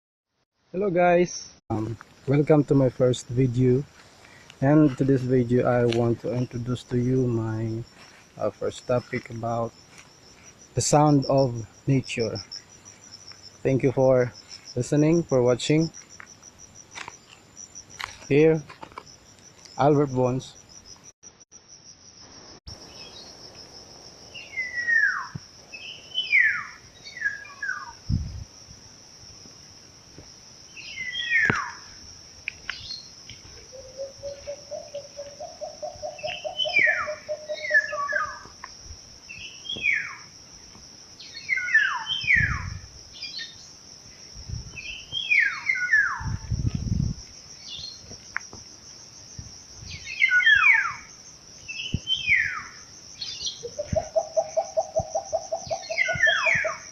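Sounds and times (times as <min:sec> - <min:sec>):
high-pitched insect drone: 0:04.6 - 0:56.9
birds calling descending notes: 0:53.2 - 0:56.8.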